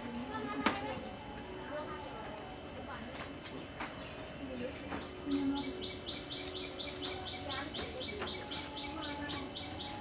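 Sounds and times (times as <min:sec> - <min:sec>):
bird chirping: 0:04.0 - 0:10.0.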